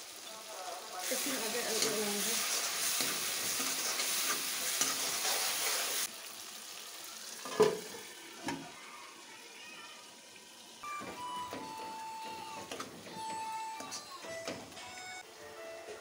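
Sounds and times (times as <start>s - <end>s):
masala sizzling in a pan: 0.0s - 16.0s
ladle stirring in a pan: 1.0s - 6.1s.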